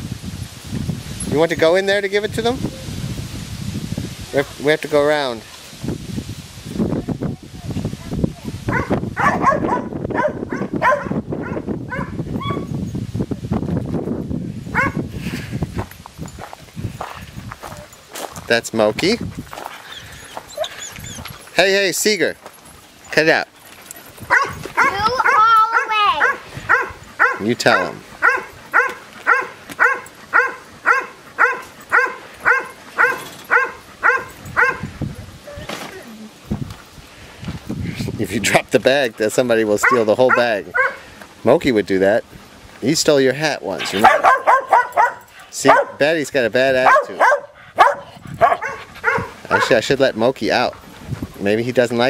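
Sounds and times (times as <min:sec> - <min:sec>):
dogs yelping: 0:08.7 - 0:12.7, 0:14.7 - 0:15.0, 0:19.6 - 0:21.6, 0:23.5 - 0:35.0, 0:39.8 - 0:41.2, 0:43.8 - 0:46.0, 0:46.8 - 0:49.9
dogs barking and whining: 0:08.7 - 0:12.8, 0:14.7 - 0:15.0, 0:19.6 - 0:21.6, 0:23.5 - 0:35.6, 0:39.7 - 0:41.2, 0:43.7 - 0:51.6.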